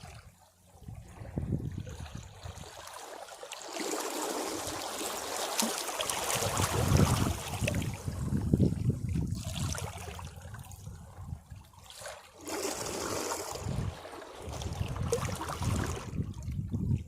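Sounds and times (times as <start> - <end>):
sea waves washing against rocks: 3.6 - 9.7.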